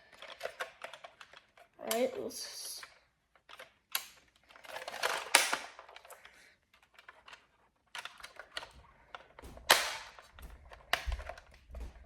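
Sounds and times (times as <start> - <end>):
toy blaster plastic clicks: 0.1 - 6.2
loud plastic snap: 5.0 - 5.9, 9.4 - 11.4.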